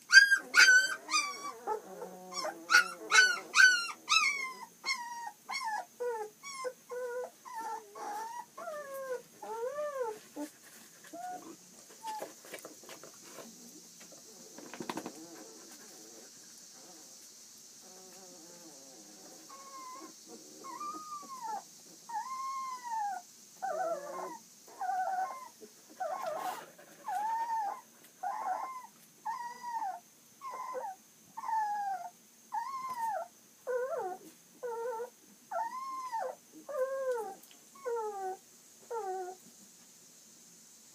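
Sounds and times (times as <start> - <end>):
puppies whimpering and crying: 0.1 - 10.5, 17.8 - 39.4.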